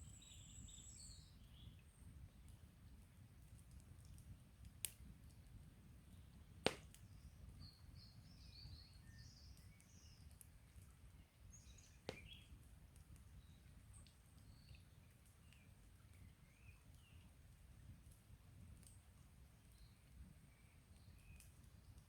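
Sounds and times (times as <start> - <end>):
campfire wood popping: 2.4 - 8.4, 9.5 - 19.1, 19.7 - 22.0
small birds chirping: 7.0 - 12.6, 13.2 - 17.3, 19.7 - 22.0.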